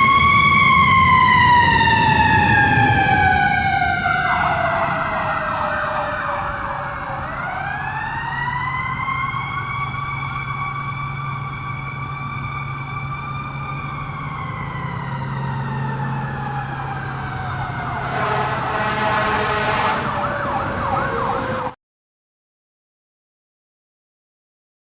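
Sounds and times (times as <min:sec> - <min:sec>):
truck engine running: 0:00.0 - 0:21.7
mechanical siren wailing: 0:00.0 - 0:21.8
warbling electronic siren: 0:00.0 - 0:21.8.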